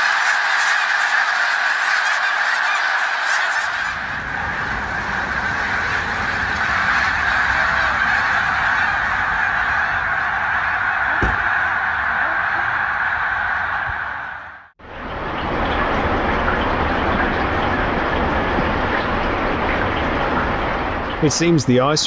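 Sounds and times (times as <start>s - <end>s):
flock of birds honking: 0.0s - 14.7s.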